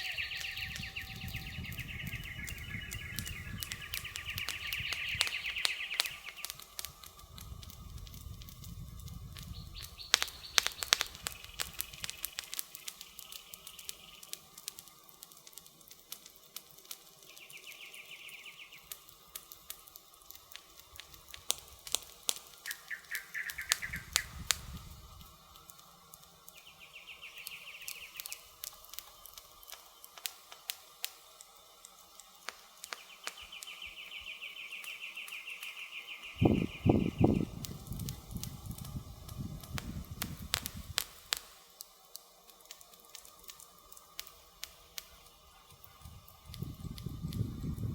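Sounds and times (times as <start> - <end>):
bird chirps: 0.0 - 6.9, 9.4 - 14.4, 17.2 - 19.1, 22.6 - 24.9, 26.5 - 30.0, 32.9 - 38.2
campfire crackling and popping: 0.0 - 47.9.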